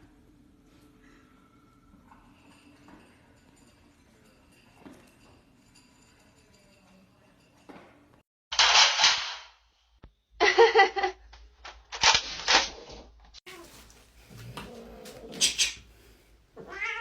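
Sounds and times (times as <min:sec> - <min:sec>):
cat hissing: 0:13.5 - 0:17.0.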